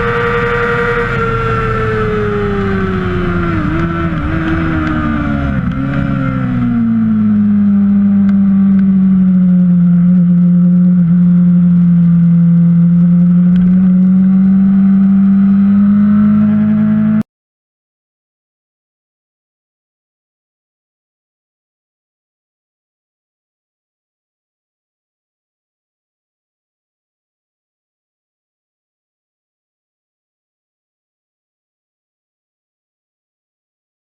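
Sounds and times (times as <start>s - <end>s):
motorcycle engine slowing: 0.0s - 17.2s.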